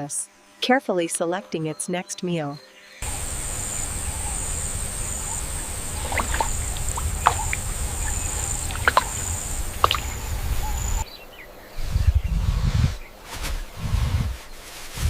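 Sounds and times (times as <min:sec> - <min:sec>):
high-pitched insect drone: 0:03.0 - 0:11.0.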